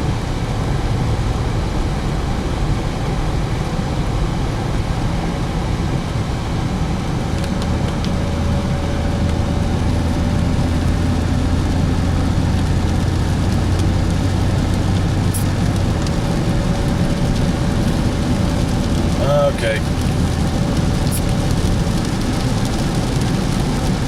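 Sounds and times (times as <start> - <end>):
car engine drone: 0.0 - 24.0
road hiss: 7.2 - 24.0.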